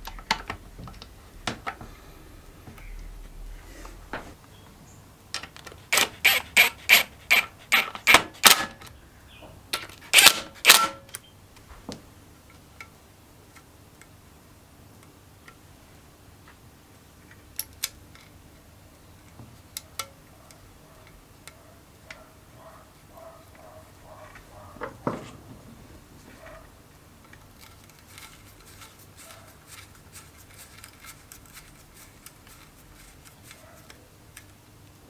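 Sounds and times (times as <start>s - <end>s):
metallic clicks of hand tools: 9.8s - 11.2s.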